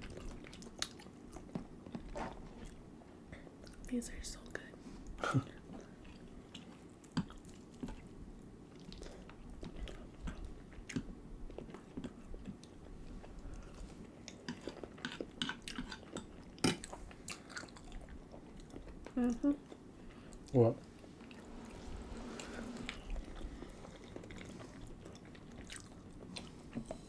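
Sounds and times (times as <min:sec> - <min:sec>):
chewing and biting food: 0:05.7 - 0:20.6, 0:23.1 - 0:26.8.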